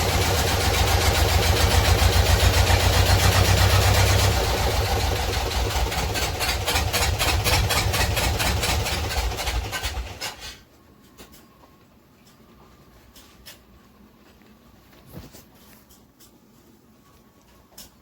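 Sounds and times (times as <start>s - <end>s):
boat engine clattering: 0.0s - 10.3s.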